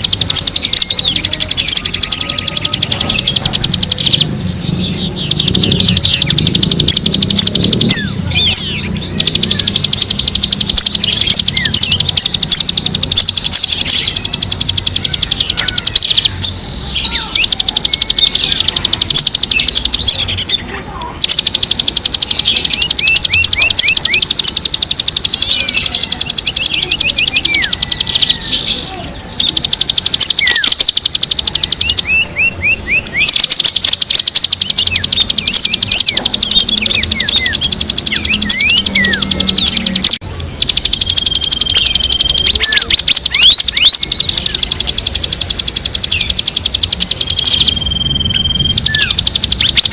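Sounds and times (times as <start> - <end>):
rapid high-pitched bird trill: 0.0 - 49.9
songbirds chirping: 0.0 - 49.9.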